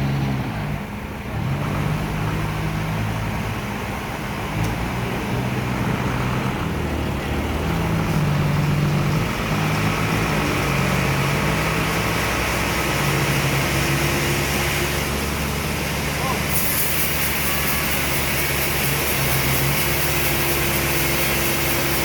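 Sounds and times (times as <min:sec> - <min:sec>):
large engine humming: 0:00.0 - 0:22.0
noisy hiss: 0:14.6 - 0:22.0.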